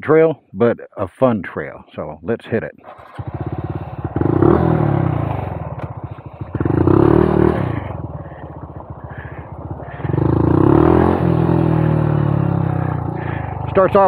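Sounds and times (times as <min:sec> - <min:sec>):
motorcycle engine accelerating: 0:02.8 - 0:14.0.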